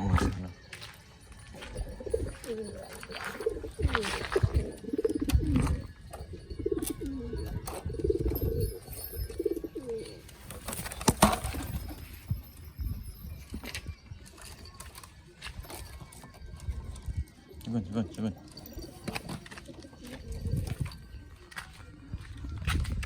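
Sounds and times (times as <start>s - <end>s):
pigeons cooing: 1.5s - 12.0s, 17.5s - 21.0s.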